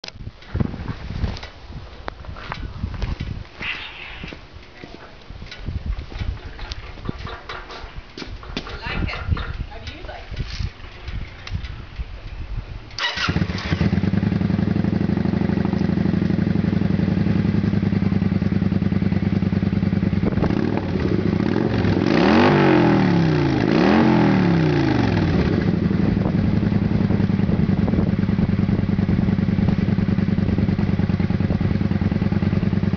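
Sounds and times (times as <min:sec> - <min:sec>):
motorcycle engine starting and idling: 0:02.4 - 0:32.9
motorcycle engine revving: 0:13.0 - 0:32.9.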